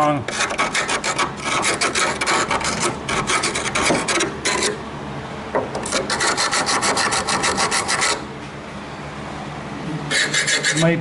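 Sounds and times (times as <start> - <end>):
hand tool scrubbing sheet steel: 0.3 - 4.8, 5.9 - 8.2, 10.1 - 10.9.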